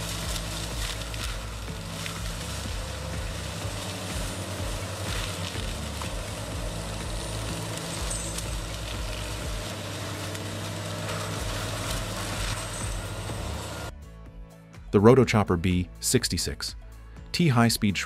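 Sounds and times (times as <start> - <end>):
heavy machinery engine drone: 0.0 - 13.9.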